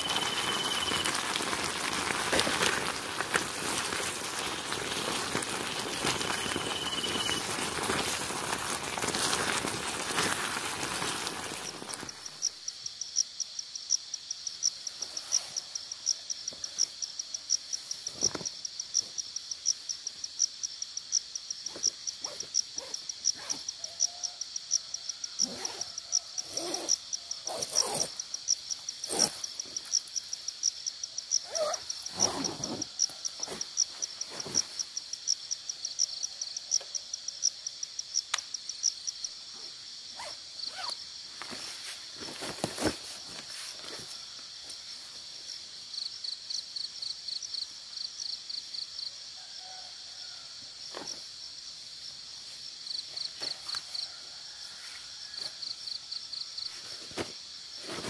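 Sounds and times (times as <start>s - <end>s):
insect chirping: 0.0s - 58.0s.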